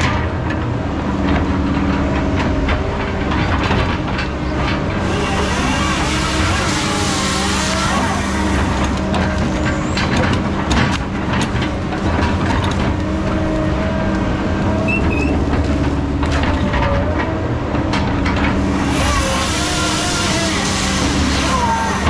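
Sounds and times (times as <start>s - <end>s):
diesel engine running: 0.0s - 22.0s
machine whine: 3.4s - 17.0s, 18.3s - 22.0s
sharp knocks and cracks: 8.5s - 14.2s.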